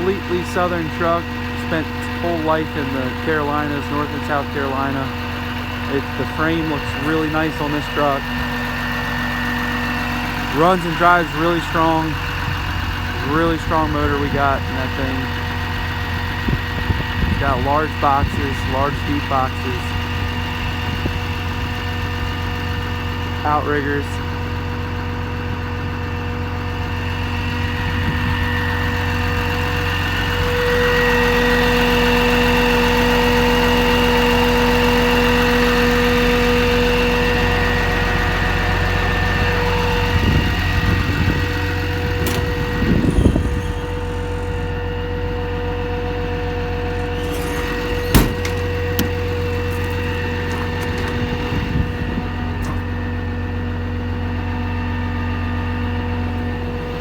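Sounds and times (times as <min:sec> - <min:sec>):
diesel engine idling: 0:00.0 - 0:57.0
engine clicks and knocks: 0:00.0 - 0:57.0.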